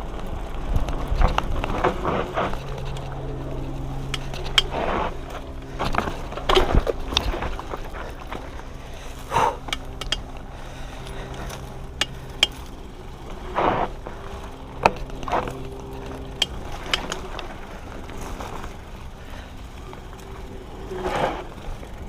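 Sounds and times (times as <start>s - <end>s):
mountain bike rattling on trail: 0.0s - 22.0s
steady rumble: 0.0s - 22.0s
sharp knocks and clicks: 9.7s - 10.2s.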